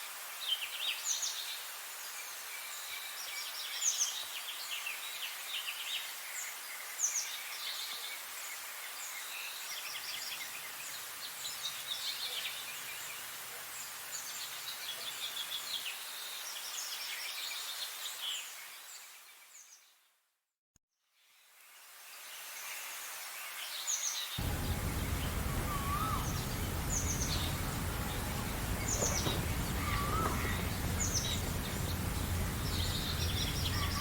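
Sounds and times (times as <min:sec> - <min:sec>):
steady outdoor hiss: 0:00.0 - 0:19.7, 0:21.2 - 0:34.0
songbirds chirping and singing: 0:24.4 - 0:34.0.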